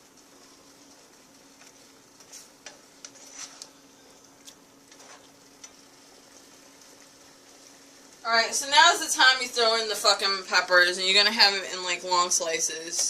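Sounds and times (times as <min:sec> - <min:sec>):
faint steady hum: 0:00.0 - 0:13.0
food sizzling in a frying pan: 0:00.0 - 0:13.0.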